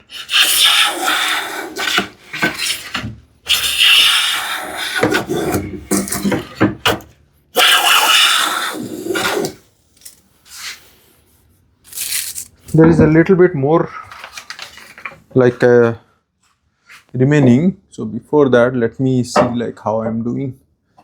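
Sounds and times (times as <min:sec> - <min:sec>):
hand plane shaving wood: 0:00.0 - 0:06.6.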